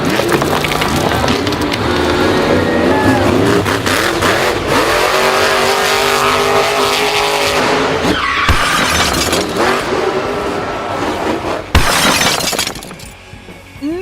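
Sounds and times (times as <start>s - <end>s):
monster truck engine running: 0.0s - 7.0s
tyre squeal: 8.0s - 9.0s.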